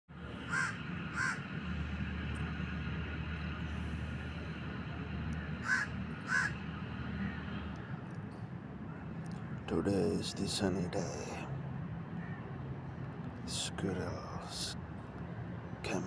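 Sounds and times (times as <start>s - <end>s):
low background hum: 0.1s - 16.0s
harsh bird calls: 0.3s - 1.5s, 5.4s - 8.1s.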